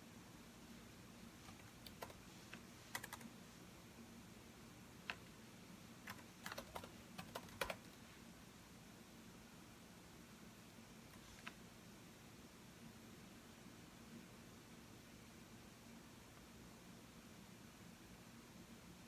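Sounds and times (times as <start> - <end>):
computer keyboard typing: 1.5 - 3.3, 6.0 - 8.0.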